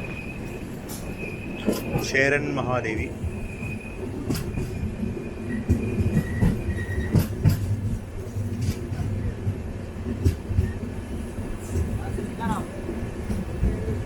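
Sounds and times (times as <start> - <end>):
train rumbling on rails: 0.0 - 14.0
faint high wheel squeal: 3.3 - 7.3.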